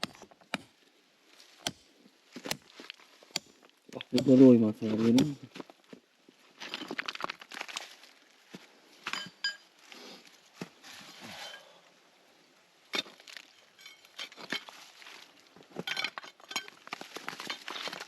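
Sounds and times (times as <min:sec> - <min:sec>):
hand tool scraping stones: 0:02.4 - 0:05.6, 0:12.9 - 0:18.0
metallic rings: 0:09.1 - 0:09.7, 0:13.5 - 0:14.2.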